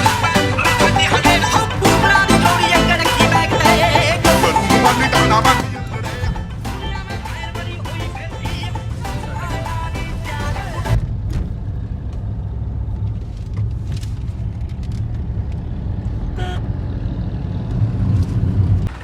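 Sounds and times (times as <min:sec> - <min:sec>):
background music: 0:00.0 - 0:11.0
tractor diesel engine rumbling: 0:00.0 - 0:19.0.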